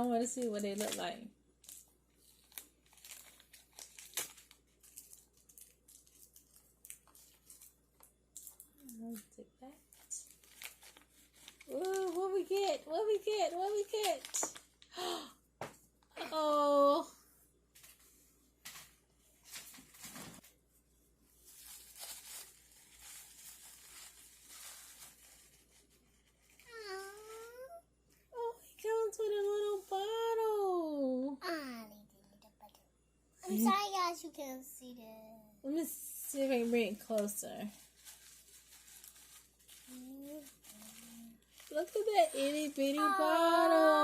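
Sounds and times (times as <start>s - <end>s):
plastic packaging crinkling and tearing: 0.1s - 12.9s, 13.6s - 14.9s, 21.4s - 27.6s, 36.5s - 44.0s.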